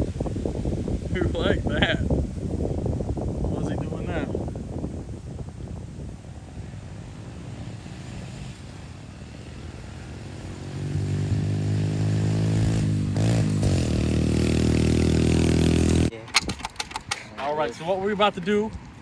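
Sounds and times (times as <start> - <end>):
motorbike engine running: 10.5 - 17.2.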